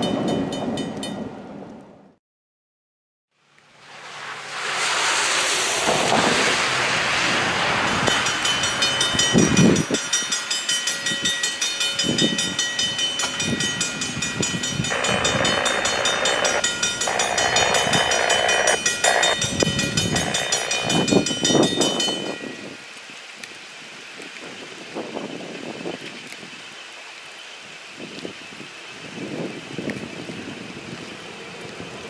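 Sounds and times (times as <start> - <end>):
rain and wind: 3.3 - 32.0
distant locomotive approaching: 3.6 - 22.4.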